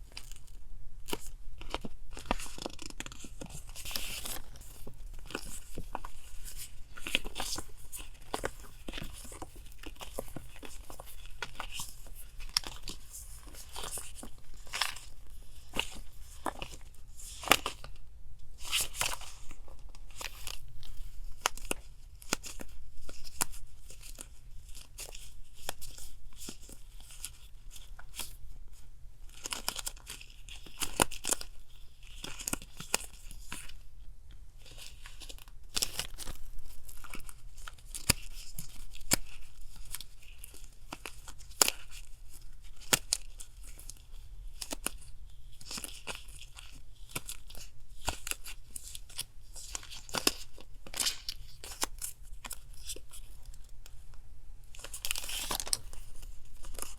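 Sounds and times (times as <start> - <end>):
paper tearing and rustling: 54.8 - 56.9.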